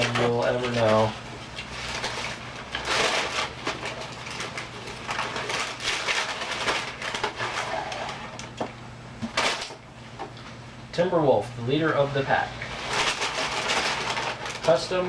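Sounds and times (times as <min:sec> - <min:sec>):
gift packaging crinkling: 0:00.0 - 0:08.6, 0:12.3 - 0:15.0.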